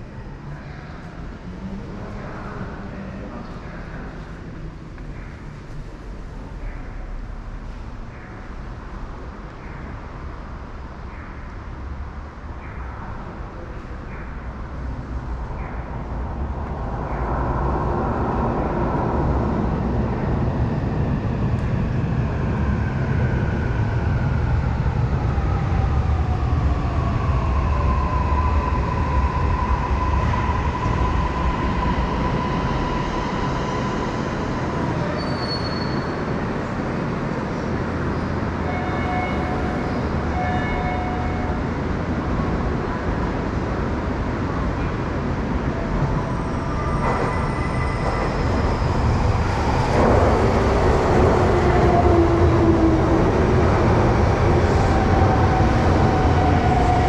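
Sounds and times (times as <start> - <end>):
train rumble: 0.0 - 57.0.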